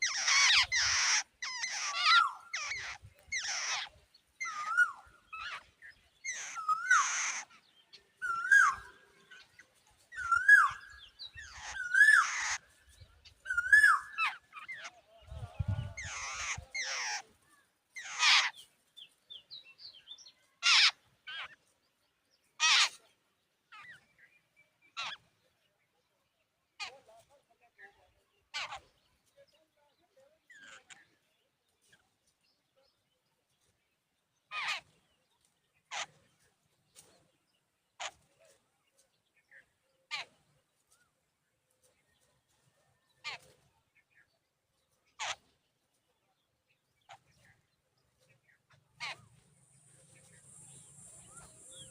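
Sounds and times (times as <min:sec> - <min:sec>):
birds giving harsh squeaky calls: 0:00.0 - 0:17.4, 0:18.0 - 0:18.7, 0:20.6 - 0:21.6, 0:22.6 - 0:23.1, 0:23.7 - 0:24.1, 0:24.9 - 0:25.4, 0:26.8 - 0:27.0, 0:28.4 - 0:29.3, 0:30.4 - 0:31.2, 0:34.5 - 0:35.1, 0:35.8 - 0:37.2, 0:37.9 - 0:38.6, 0:40.0 - 0:40.5, 0:43.2 - 0:43.6, 0:45.0 - 0:45.6, 0:48.5 - 0:51.9.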